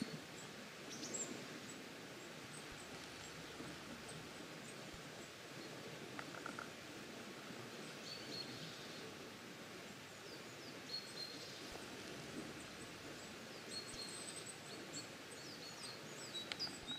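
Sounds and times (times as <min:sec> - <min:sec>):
faint steady hiss: 0:00.0 - 0:16.9
small birds chirping: 0:12.6 - 0:16.9.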